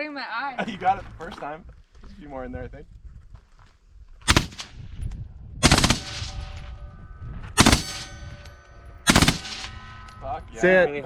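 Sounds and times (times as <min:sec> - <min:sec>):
automatic gunfire bursts: 0:04.3 - 0:04.6, 0:05.6 - 0:06.3, 0:07.6 - 0:08.1, 0:09.1 - 0:09.7.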